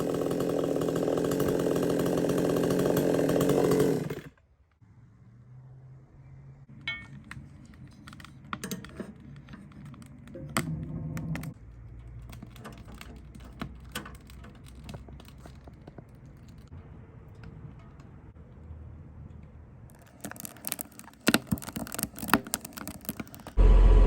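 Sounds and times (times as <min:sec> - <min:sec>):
chainsaw running: 0:00.0 - 0:04.4, 0:23.6 - 0:24.0
low steady hum: 0:23.6 - 0:24.0.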